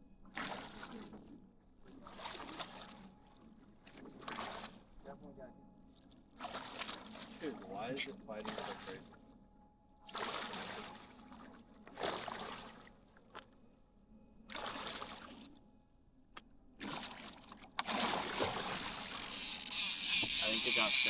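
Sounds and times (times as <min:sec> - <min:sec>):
fish thrashing in water: 0:16.8 - 0:21.0.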